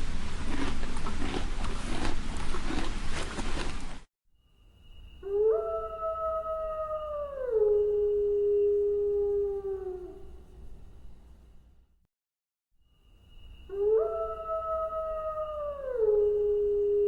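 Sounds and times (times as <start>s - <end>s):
wolf howling: 5.2s - 10.5s, 13.7s - 17.0s.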